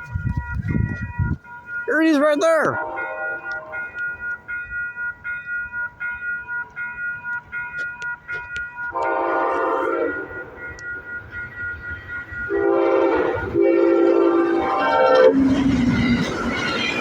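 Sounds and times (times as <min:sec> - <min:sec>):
train air horn blasts: 0:02.8 - 0:03.9, 0:08.9 - 0:10.6, 0:12.5 - 0:15.7
train rushing past: 0:09.0 - 0:17.0.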